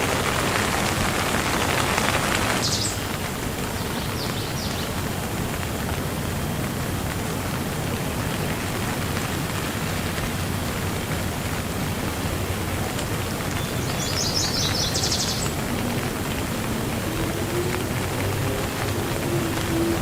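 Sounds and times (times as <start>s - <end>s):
rain falling: 0.0s - 20.0s
bird chirping: 13.5s - 15.7s.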